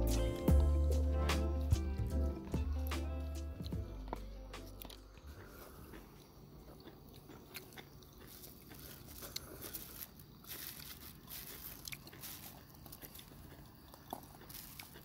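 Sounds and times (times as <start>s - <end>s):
person chewing and crunching: 1.6s - 15.0s.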